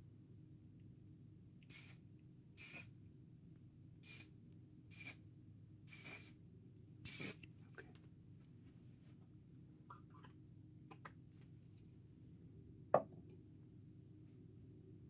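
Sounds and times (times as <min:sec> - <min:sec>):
hairspray spritzing: 0:02.6 - 0:02.9, 0:05.9 - 0:06.3.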